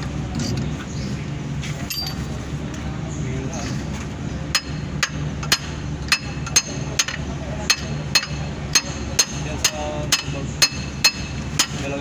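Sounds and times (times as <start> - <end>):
steady low hum: 0.0 - 12.0
hammer striking metal: 4.5 - 11.9.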